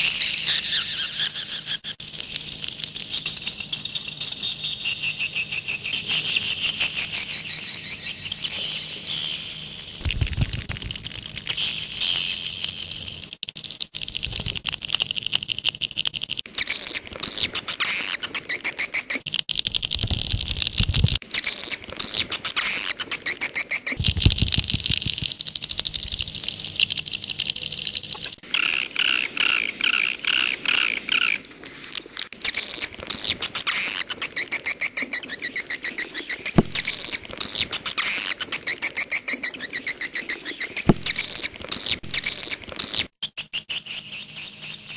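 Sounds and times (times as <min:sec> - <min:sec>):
high chirping and twittering birds: 0:00.0 - 0:10.0, 0:20.0 - 0:42.5.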